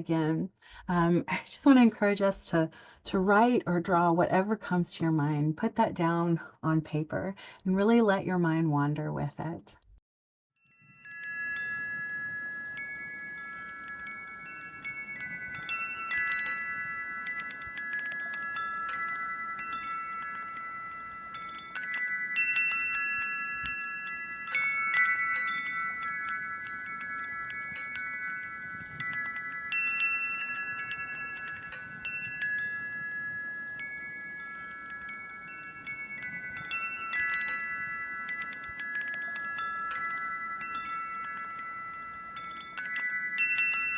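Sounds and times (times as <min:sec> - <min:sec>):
wind chimes ringing: 0:10.6 - 0:43.9.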